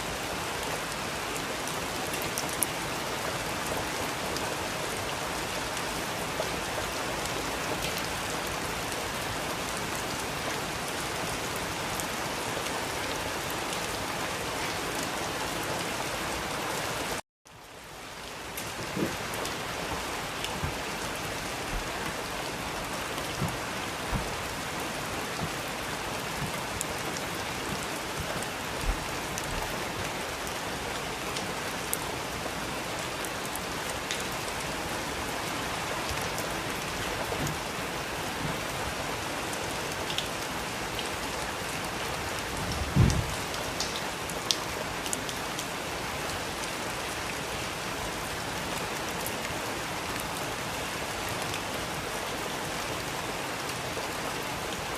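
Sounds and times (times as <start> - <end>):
steady rain falling: 0.0 - 54.9
low thump: 23.4 - 24.5.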